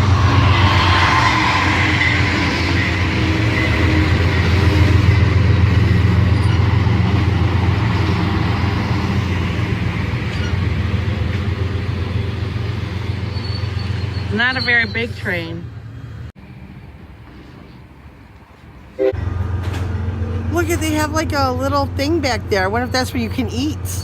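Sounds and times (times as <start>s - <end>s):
train wheel noise: 0.0s - 16.3s
train engine hum: 0.0s - 24.0s.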